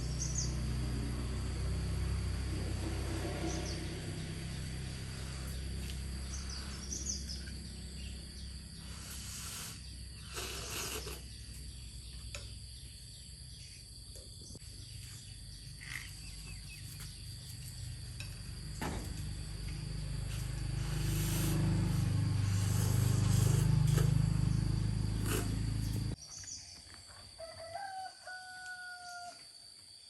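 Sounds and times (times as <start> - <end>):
low hum: 0.0 - 9.0, 18.2 - 26.2
insects chirping: 0.0 - 30.0.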